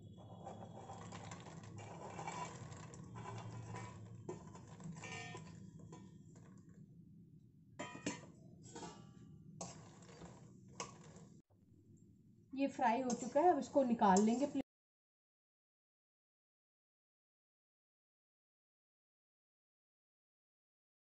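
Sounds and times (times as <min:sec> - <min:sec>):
spatula stirring: 0:00.0 - 0:06.8, 0:07.8 - 0:11.4, 0:12.6 - 0:14.6.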